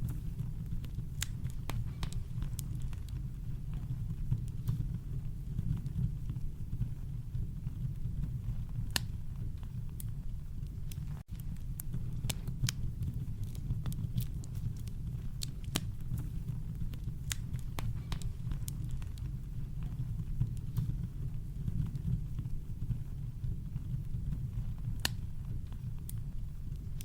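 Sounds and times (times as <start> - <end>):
campfire crackling and popping: 0.0 - 27.0.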